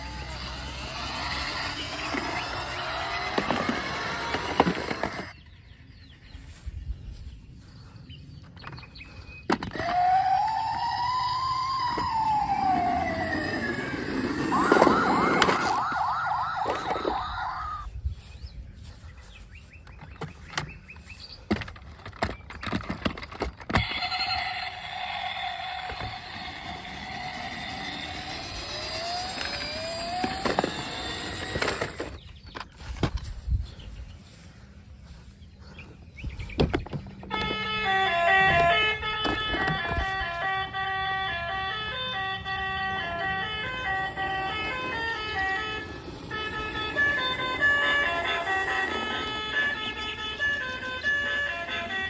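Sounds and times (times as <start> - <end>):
toy siren sound effects: 0.0 - 5.4, 9.6 - 17.9, 23.7 - 32.2, 37.3 - 52.0.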